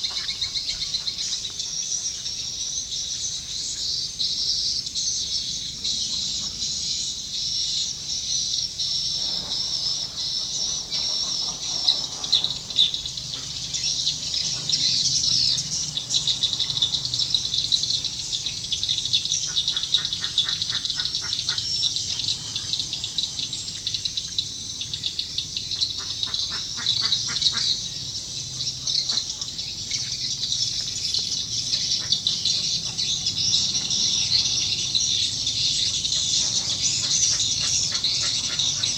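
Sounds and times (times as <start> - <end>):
low fast rattling bird call: 25.4 - 38.9.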